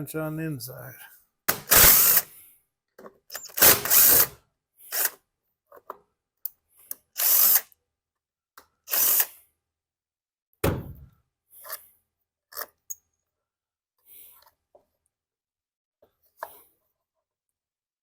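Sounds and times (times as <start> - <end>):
cordless drill spinning: 1.5 - 2.3, 3.3 - 5.2, 6.9 - 7.8, 8.9 - 9.4.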